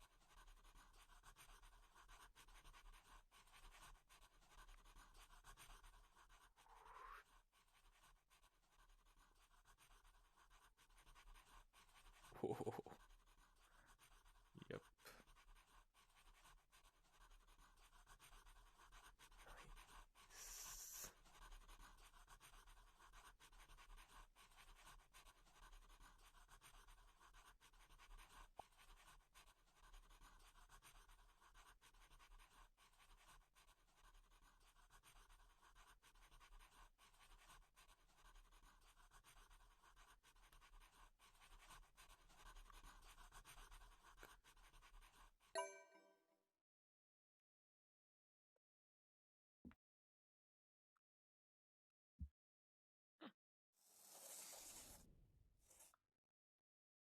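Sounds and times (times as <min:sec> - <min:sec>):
faint scratching: 0:00.5 - 0:33.6, 0:53.8 - 0:55.0.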